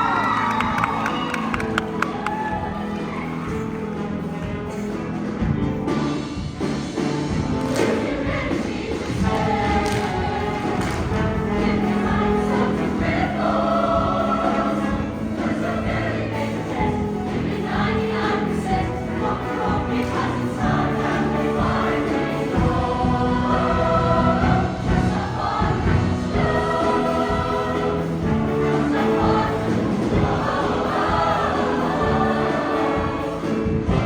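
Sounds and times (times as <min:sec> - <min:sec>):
choir singing in harmony: 0:00.0 - 0:05.4, 0:06.1 - 0:34.0
live band playing: 0:00.0 - 0:34.0.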